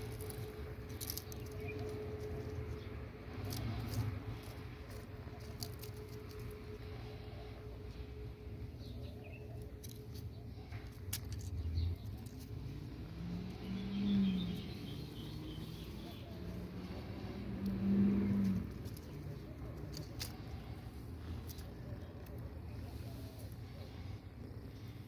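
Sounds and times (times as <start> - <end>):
steady low rumble: 0.0 - 25.0
low cooing calls: 11.4 - 25.0.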